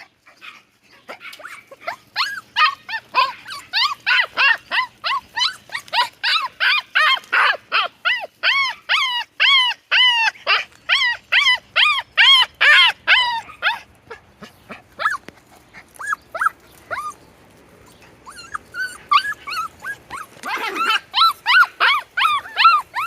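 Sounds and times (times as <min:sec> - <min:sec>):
puppy yipping and barking: 0:00.0 - 0:15.2, 0:16.0 - 0:17.2, 0:18.2 - 0:23.0.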